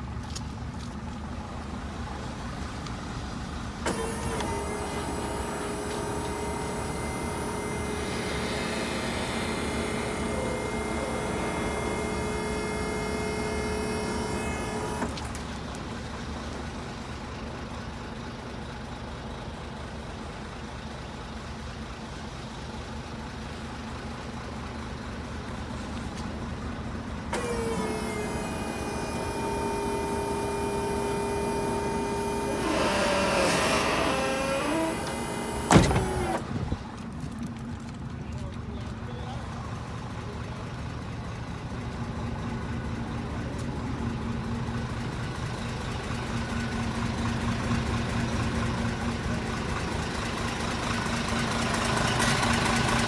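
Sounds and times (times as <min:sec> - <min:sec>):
diesel truck engine running: 0:00.0 - 0:20.4, 0:22.8 - 0:53.0
steady whine: 0:03.8 - 0:15.2, 0:27.3 - 0:36.6.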